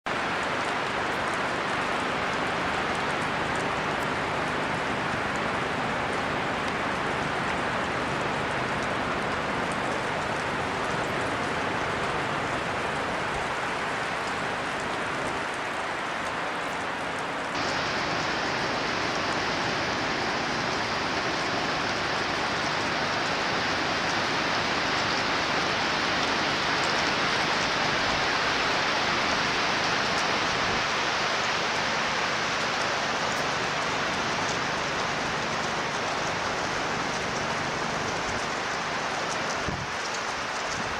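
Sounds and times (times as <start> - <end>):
wind and rain storm: 0.1 - 40.9.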